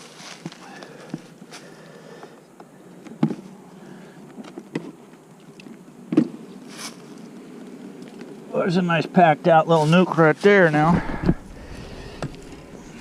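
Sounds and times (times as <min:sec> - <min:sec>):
bees buzzing: 0:10.8 - 0:13.0.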